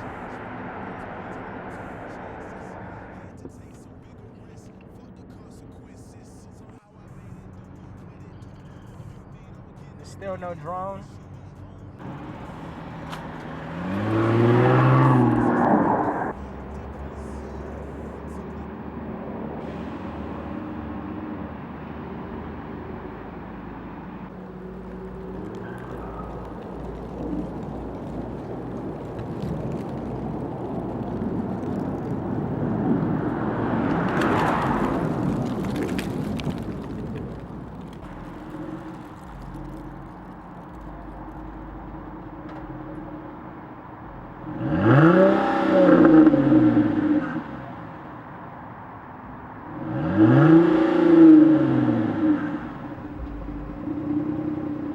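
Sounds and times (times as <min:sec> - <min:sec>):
car engine revving: 0:00.0 - 0:54.9
road noise: 0:00.0 - 0:54.9
low exhaust hum: 0:21.0 - 0:44.8.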